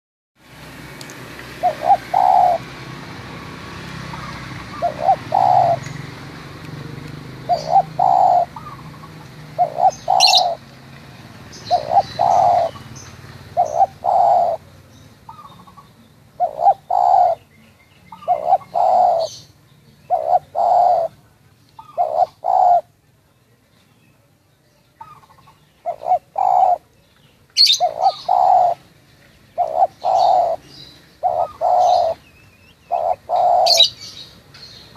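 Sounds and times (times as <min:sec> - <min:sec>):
small birds chirping faintly: 0:01.0 - 0:34.9
dove cooing: 0:01.5 - 0:06.2, 0:07.3 - 0:10.7, 0:11.6 - 0:14.7, 0:15.3 - 0:17.5, 0:18.1 - 0:19.5, 0:20.1 - 0:23.0, 0:25.0 - 0:26.9, 0:27.6 - 0:28.9, 0:29.5 - 0:34.3.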